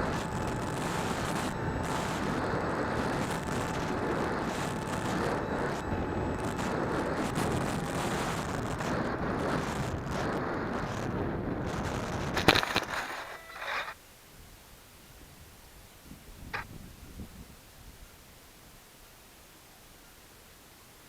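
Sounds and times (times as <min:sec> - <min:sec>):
wind on microphone: 0:00.0 - 0:13.8, 0:15.2 - 0:18.1
drone propellers rushing: 0:00.0 - 0:14.0
faint thin whine: 0:00.0 - 0:21.0.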